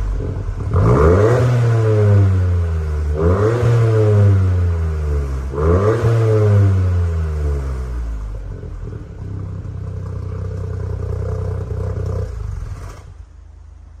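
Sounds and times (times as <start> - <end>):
car engine revving and idling: 0.0 - 14.0.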